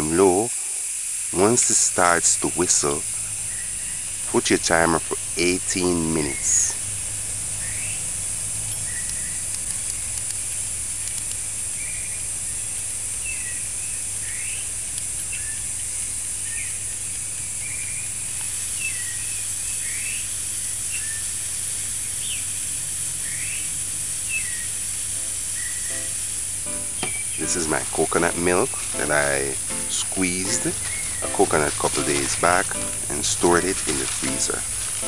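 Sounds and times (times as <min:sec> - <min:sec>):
pressure cooker valve hissing: 0:00.0 - 0:13.3, 0:18.4 - 0:31.8
small birds chirping: 0:00.0 - 0:35.0.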